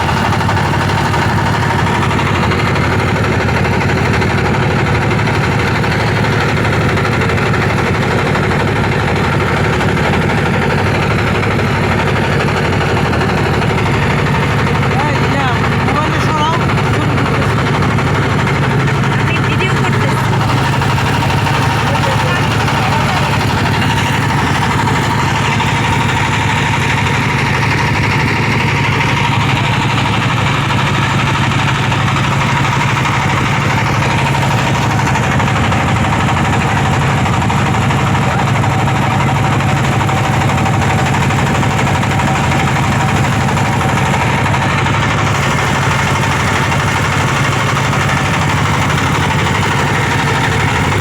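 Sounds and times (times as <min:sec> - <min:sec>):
motorboat engine humming: 0:00.0 - 0:51.0.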